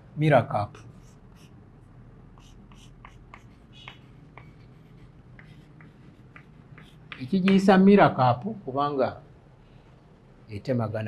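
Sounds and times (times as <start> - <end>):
low room hum: 0.0 - 11.0
pen writing ticks and scratches: 2.4 - 7.7.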